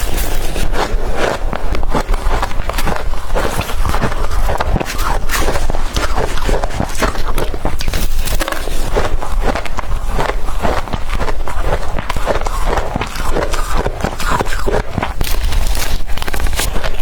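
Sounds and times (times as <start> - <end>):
chewing crushed ice: 0.0 - 17.0.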